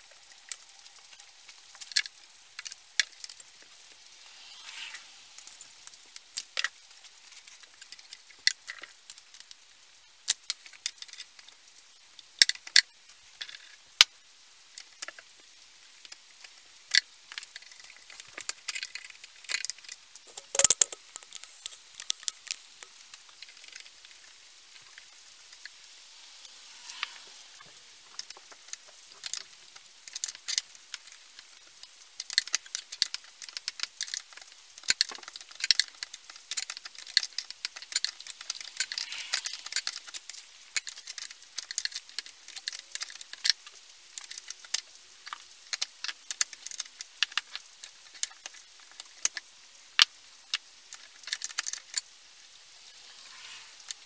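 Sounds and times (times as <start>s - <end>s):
small hard parts clicking: 0.0s - 52.2s
light scraping of parts: 26.4s - 29.5s, 35.7s - 43.5s, 52.9s - 54.0s.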